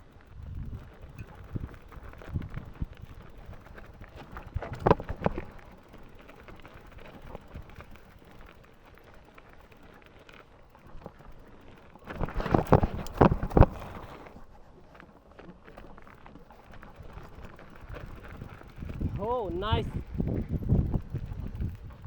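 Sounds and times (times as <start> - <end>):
bike frame knocks and rattles: 0.6 - 5.6, 12.0 - 14.2.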